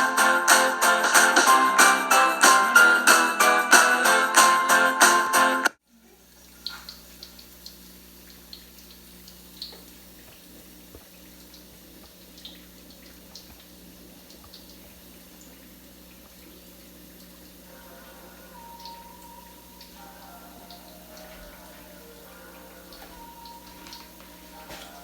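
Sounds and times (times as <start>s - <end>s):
food frying in hot oil: 5.9s - 17.7s.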